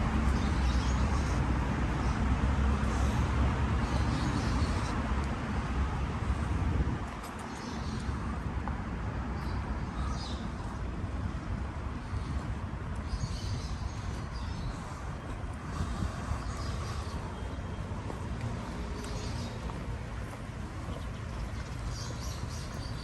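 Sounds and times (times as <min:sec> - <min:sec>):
road traffic rumble: 0:00.0 - 0:23.0
small birds chirping: 0:12.0 - 0:23.0.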